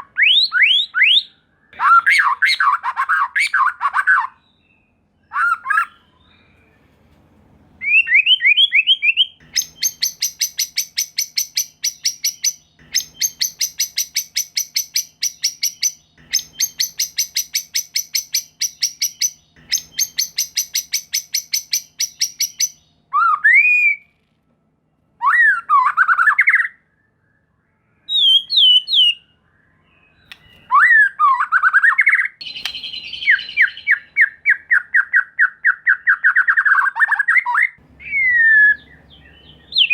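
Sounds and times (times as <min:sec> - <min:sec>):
songbird singing rapid notes: 0:07.8 - 0:23.0, 0:30.0 - 0:39.9
sweeping bird whistles: 0:07.8 - 0:24.0, 0:25.2 - 0:39.9
fast bird chattering: 0:09.4 - 0:22.8.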